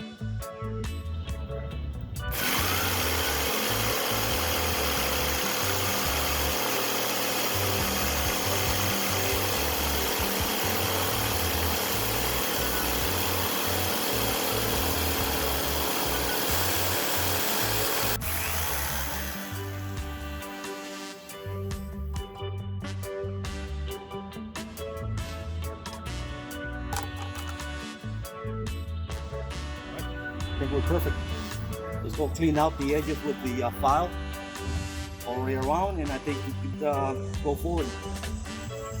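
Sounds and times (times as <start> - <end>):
background music: 0.0 - 39.0
power tool cutting plastic: 2.3 - 21.6.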